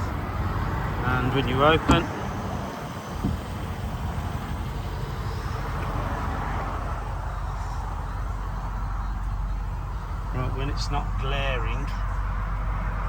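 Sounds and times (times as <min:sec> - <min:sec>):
steady low rumble: 0:00.0 - 0:13.0
car door opening thump: 0:01.8 - 0:02.2, 0:03.1 - 0:03.5.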